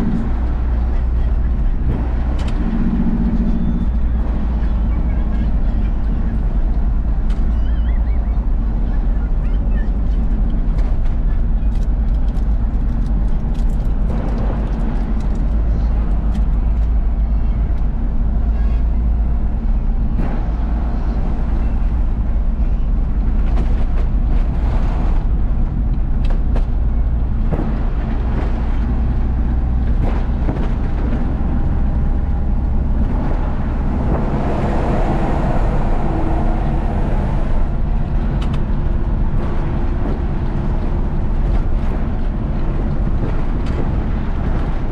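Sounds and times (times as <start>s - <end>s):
road noise: 0.0s - 44.9s
truck diesel engine rumbling: 0.0s - 44.9s
clicks and rattles: 10.0s - 17.0s
faint rising whine: 27.4s - 44.9s.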